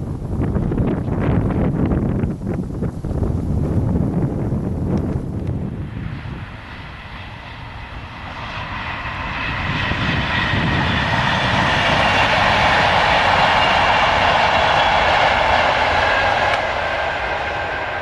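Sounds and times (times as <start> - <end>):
train passing at speed: 5.4 - 18.0.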